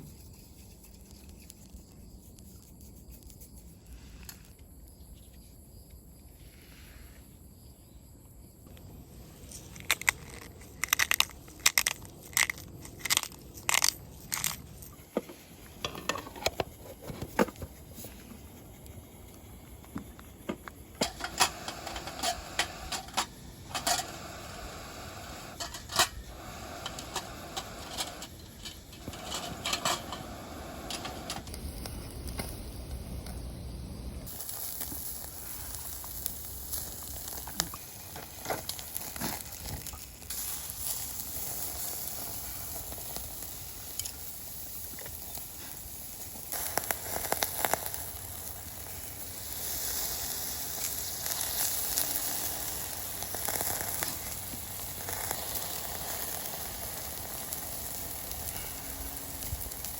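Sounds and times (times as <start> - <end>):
steady hiss: 0.0 - 59.9
camp cookware clinking: 9.6 - 17.8, 20.5 - 31.6.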